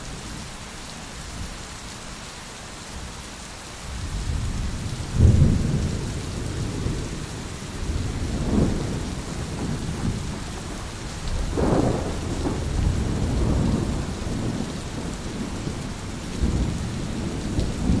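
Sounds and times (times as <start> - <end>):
heavy rain: 0.0 - 18.0
low rolling thunder: 3.9 - 18.0.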